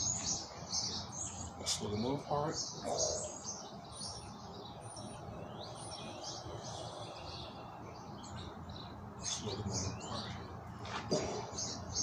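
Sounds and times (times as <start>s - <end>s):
small birds chirping: 0.0s - 12.0s
steady background hiss: 0.0s - 12.0s.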